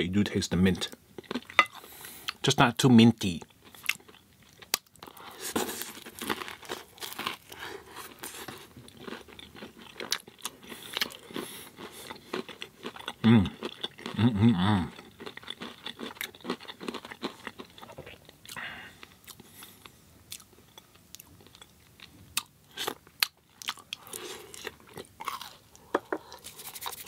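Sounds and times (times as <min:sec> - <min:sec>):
chewing and crunching crisp food: 0:00.6 - 0:02.5, 0:03.2 - 0:27.0
person humming with enjoyment: 0:13.2 - 0:14.9.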